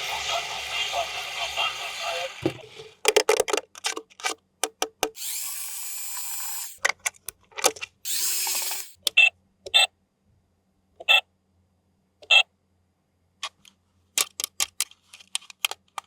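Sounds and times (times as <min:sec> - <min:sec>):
high whirring hiss: 0:00.0 - 0:02.7
plastic clicks and taps: 0:02.4 - 0:05.2, 0:13.4 - 0:16.0.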